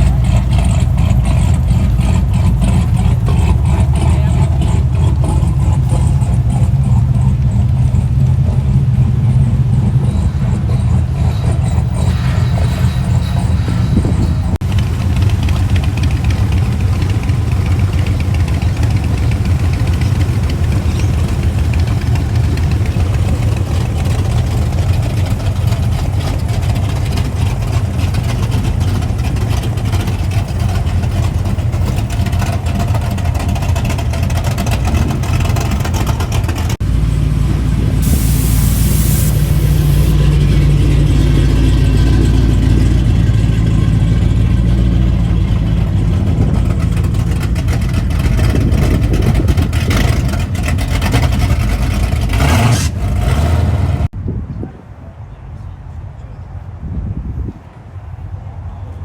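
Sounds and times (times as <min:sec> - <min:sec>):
car engines droning: 0:00.0 - 0:56.8
sharp hiss: 0:38.0 - 0:40.2.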